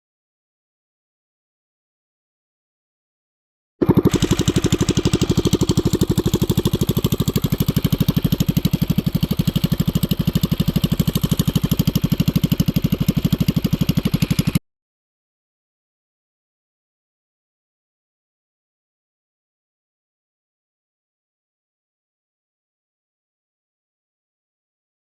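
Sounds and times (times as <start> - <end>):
minibike engine running: 3.8 - 14.6.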